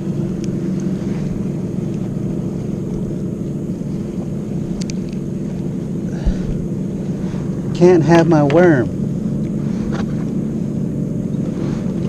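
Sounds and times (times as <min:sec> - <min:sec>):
motorboat engine humming: 0:00.0 - 0:12.0
small clicks: 0:04.7 - 0:05.2.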